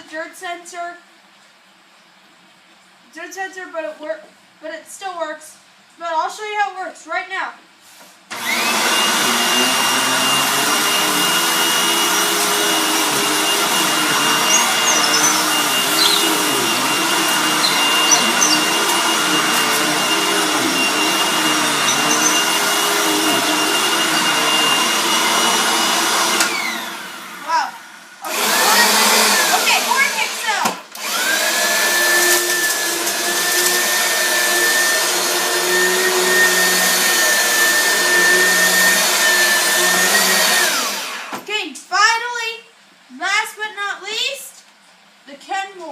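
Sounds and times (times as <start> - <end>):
vacuum cleaner whining: 8.3 - 41.4.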